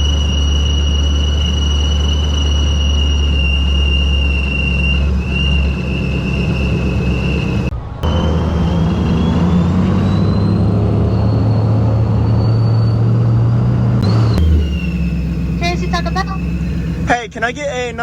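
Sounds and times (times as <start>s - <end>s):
car engine drone: 0.0s - 18.0s
supercharger whine: 0.0s - 18.0s.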